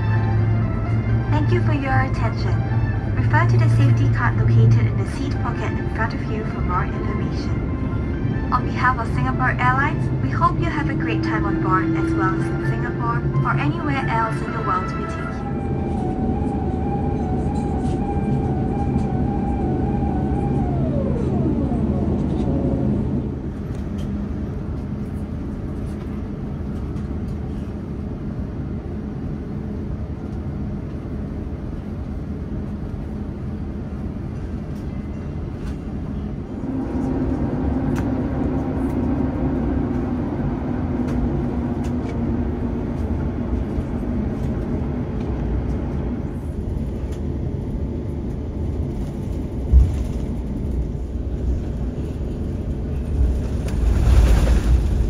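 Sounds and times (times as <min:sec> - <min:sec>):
aircraft cabin low rumble: 0:00.0 - 0:55.0.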